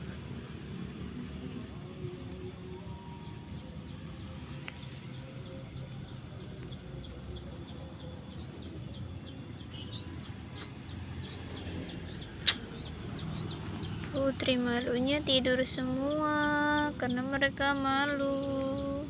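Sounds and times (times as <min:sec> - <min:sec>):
small bird chirping: 0:02.3 - 0:19.0
sharp click: 0:12.4 - 0:12.6.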